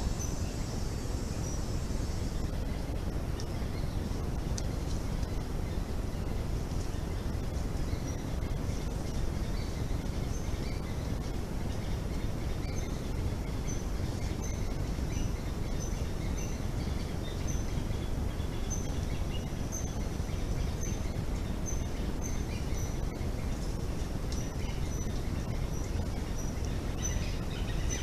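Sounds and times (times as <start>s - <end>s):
low background rumble: 0.0s - 28.0s
bird chirping: 7.1s - 23.7s, 24.3s - 28.0s.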